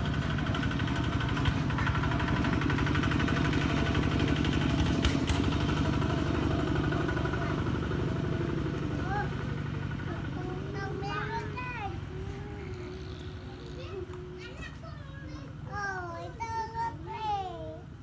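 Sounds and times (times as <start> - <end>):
engine running with pulsing beat: 0.0 - 11.1.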